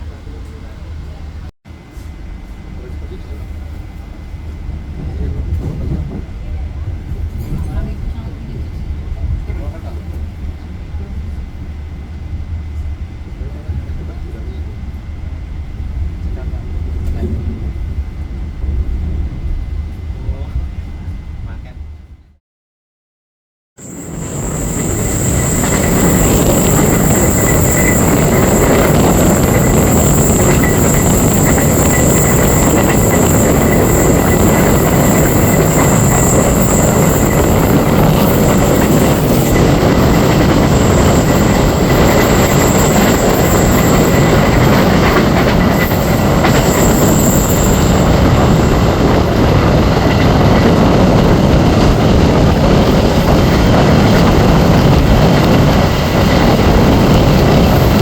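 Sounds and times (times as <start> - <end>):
train wheels rumbling on track: 0.0 - 22.2, 23.8 - 58.0
thin high whine: 23.8 - 58.0.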